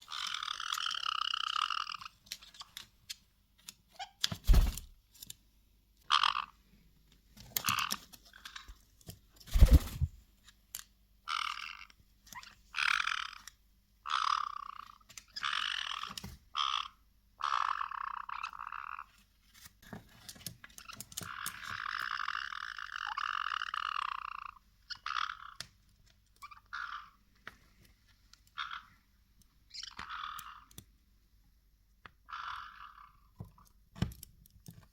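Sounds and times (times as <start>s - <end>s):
parrots making harsh buzzing calls: 0.1s - 2.1s, 6.1s - 6.5s, 11.2s - 11.9s, 12.7s - 13.4s, 14.1s - 19.0s, 21.3s - 25.6s, 28.6s - 29.0s, 29.7s - 30.7s, 32.3s - 33.3s.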